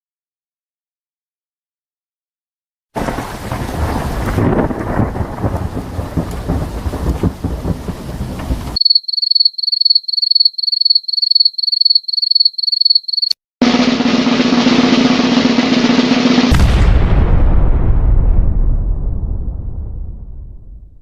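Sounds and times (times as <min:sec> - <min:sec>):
heavy rain: 0:03.0 - 0:08.8
rumbling thunder: 0:03.0 - 0:08.8, 0:15.6 - 0:21.0
cricket chirping: 0:08.8 - 0:13.4.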